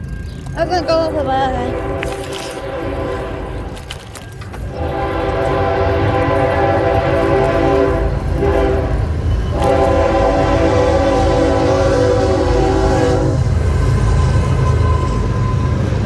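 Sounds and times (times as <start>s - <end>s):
low rumble: 0.0s - 10.8s
train horn blasts: 0.8s - 4.0s, 4.6s - 15.8s.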